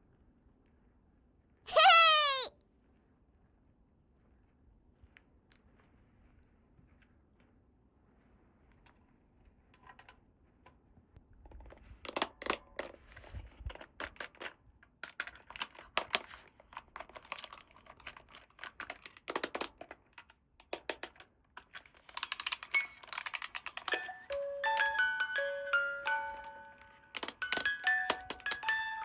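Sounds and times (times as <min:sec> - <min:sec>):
plastic toy pieces clicking: 0:14.0 - 0:25.2, 0:27.1 - 0:29.0.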